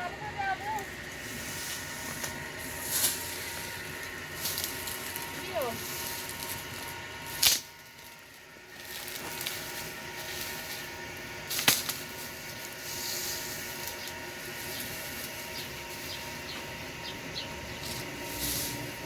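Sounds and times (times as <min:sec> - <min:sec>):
steady background hiss: 0:00.0 - 0:10.8.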